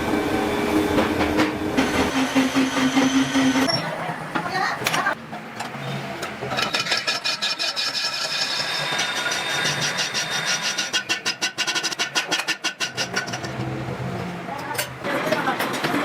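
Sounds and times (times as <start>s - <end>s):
workshop machinery whining: 0.0s - 11.3s.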